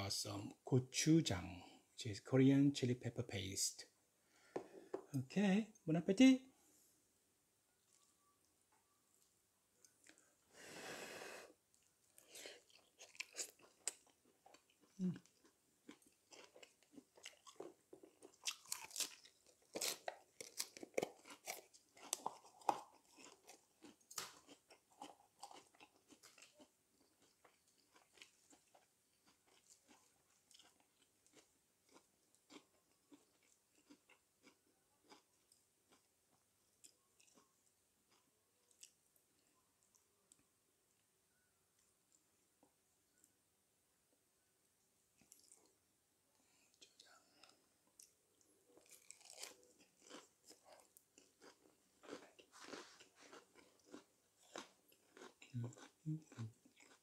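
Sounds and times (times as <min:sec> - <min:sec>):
chewing and crunching food: 0:09.8 - 0:10.4, 0:11.7 - 0:41.0, 0:45.2 - 0:45.8, 0:46.5 - 0:57.0.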